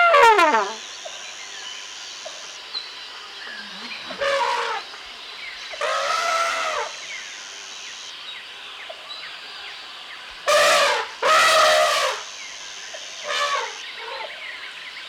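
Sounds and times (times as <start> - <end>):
elephant trumpeting: 0.0 - 0.8, 4.2 - 4.8, 10.5 - 12.3, 13.2 - 13.8
birds chirping: 0.0 - 15.0
steady jungle hiss: 0.0 - 15.0.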